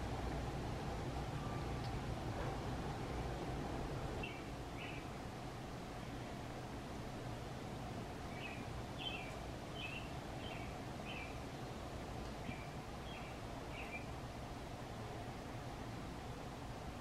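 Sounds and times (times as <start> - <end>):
bird chirping: 4.2 - 5.1, 8.3 - 11.4, 12.4 - 14.2.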